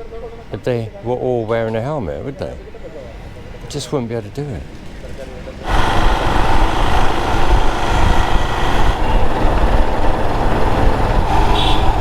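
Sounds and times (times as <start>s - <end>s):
motorcycle engine: 5.6s - 12.0s
wind rumble: 5.6s - 12.0s.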